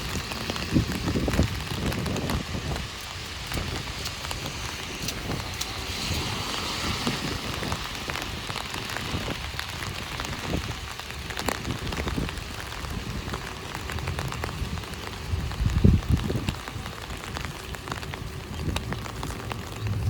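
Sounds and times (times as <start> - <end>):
heavy rain on an umbrella: 0.0 - 20.0.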